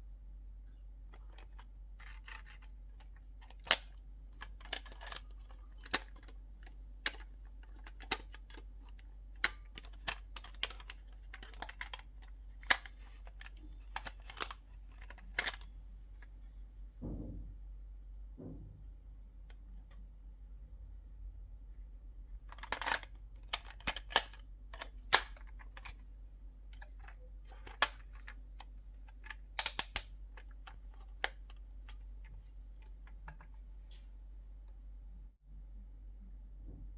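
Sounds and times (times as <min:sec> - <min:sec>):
soft thump: 0:17.0 - 0:17.5, 0:18.4 - 0:18.8
toy pieces clicking and tapping: 0:29.6 - 0:30.1.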